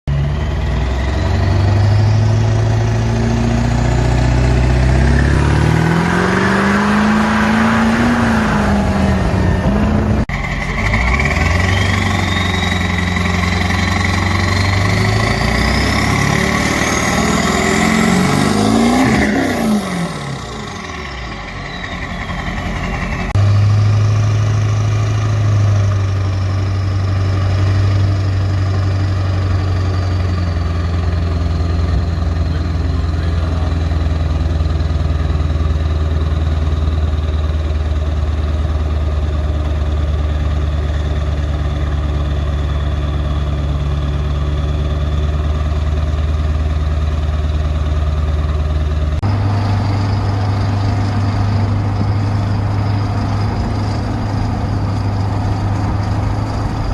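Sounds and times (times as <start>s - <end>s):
pickup engine idling: 0.1s - 56.9s
high turbo whistle: 0.8s - 32.6s, 49.2s - 56.9s.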